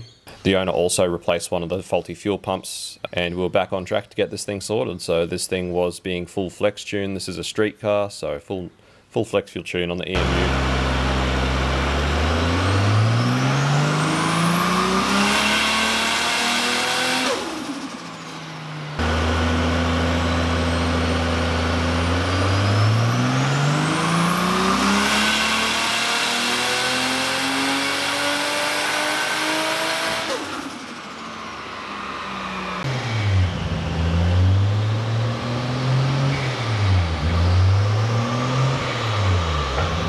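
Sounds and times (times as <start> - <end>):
engine full-throttle pulls: 10.2 - 40.0.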